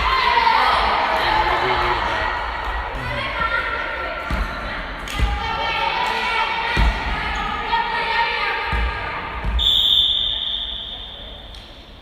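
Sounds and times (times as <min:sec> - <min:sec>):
voices in gym hall: 0:00.0 - 0:12.0
referee's whistle blast: 0:09.6 - 0:11.4.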